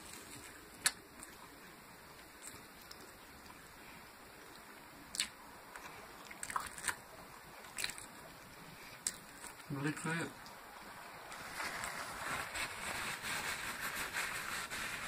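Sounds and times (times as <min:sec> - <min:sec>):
low hiss: 0:00.0 - 0:15.0
person chewing: 0:04.4 - 0:07.0, 0:08.8 - 0:09.7
wet mouth clicks and smacks: 0:05.1 - 0:05.4, 0:06.3 - 0:07.0.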